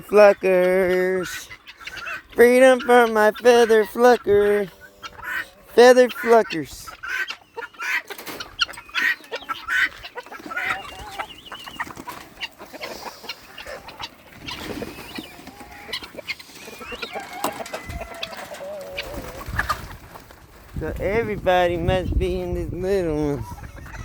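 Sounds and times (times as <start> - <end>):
chickens clucking and calling: 0.0 - 24.0.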